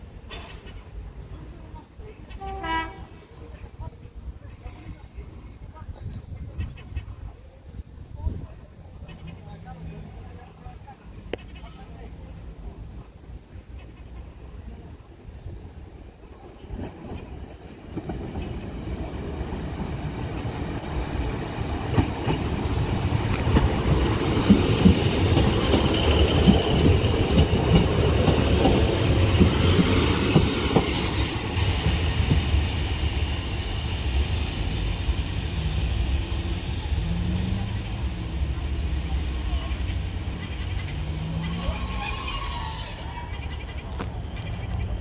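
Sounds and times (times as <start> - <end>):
passenger train passing: 0.0 - 45.0
wheel squeal: 37.2 - 43.9.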